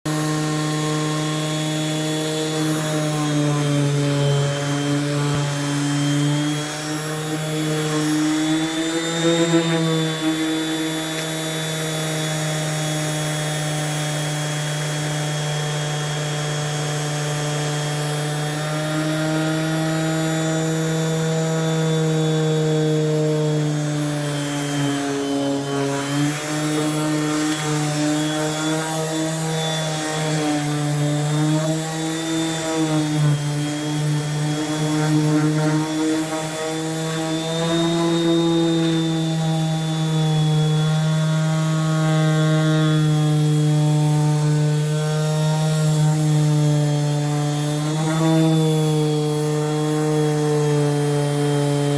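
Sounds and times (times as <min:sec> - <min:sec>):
electric sander on wood: 0:00.1 - 0:51.9.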